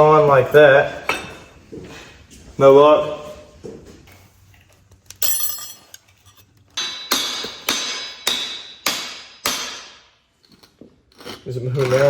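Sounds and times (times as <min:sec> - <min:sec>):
hammer striking metal: 0:06.8 - 0:10.2.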